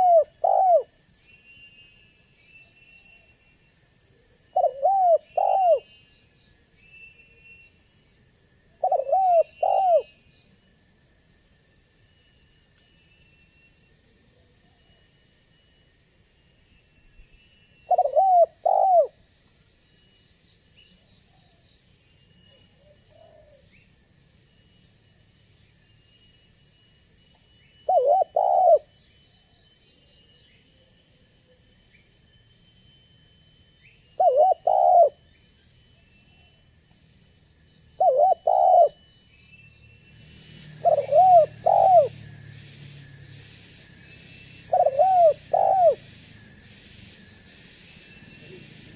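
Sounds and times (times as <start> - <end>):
dove cooing: 0.0 - 0.9, 4.6 - 5.9, 8.8 - 10.1, 17.9 - 19.2, 27.9 - 28.9, 34.2 - 35.2, 38.0 - 39.0, 40.7 - 42.1, 44.7 - 46.0.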